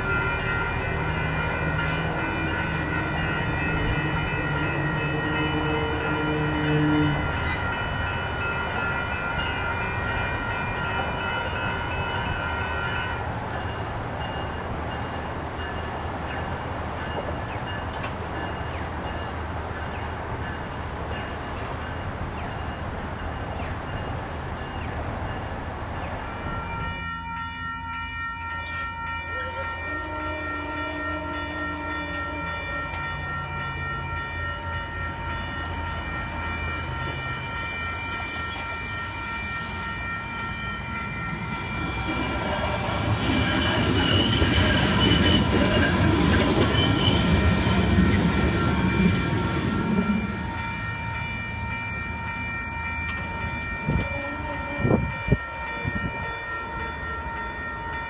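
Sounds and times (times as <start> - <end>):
train horn: 0.0 - 7.7, 28.7 - 39.8, 53.8 - 55.5
crossing warning bell ringing: 0.0 - 58.0
train wheels rumbling: 0.0 - 58.0.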